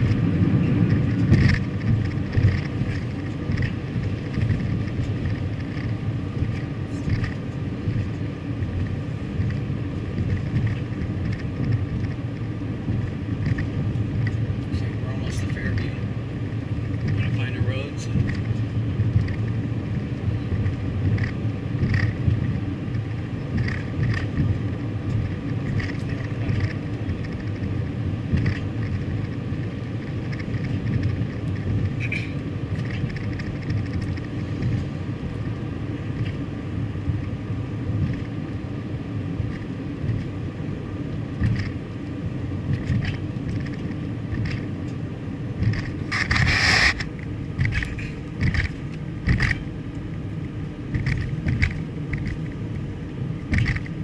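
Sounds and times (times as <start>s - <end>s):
car engine and road noise: 0.0s - 54.0s
loud burst of hissing: 46.1s - 47.0s.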